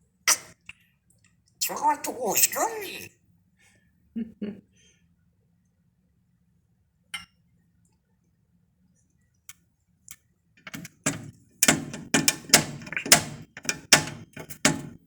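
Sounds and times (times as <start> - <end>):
sharp knocks: 10.7 - 15.0.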